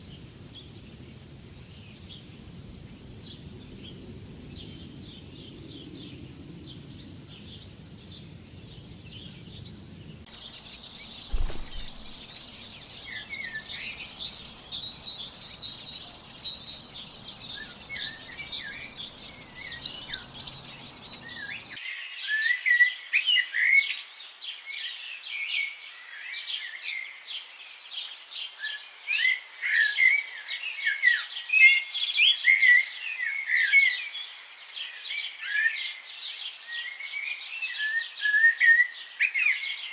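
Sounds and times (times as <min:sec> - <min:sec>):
small birds chirping chorus: 0:00.0 - 0:39.9
low thump: 0:11.2 - 0:12.4.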